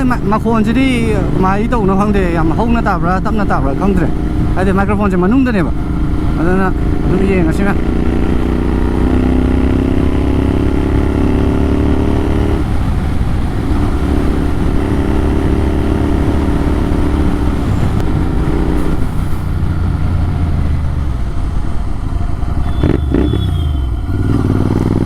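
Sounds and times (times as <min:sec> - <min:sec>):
loud motorcycle exhaust: 0:05.6 - 0:12.8, 0:22.4 - 0:25.0.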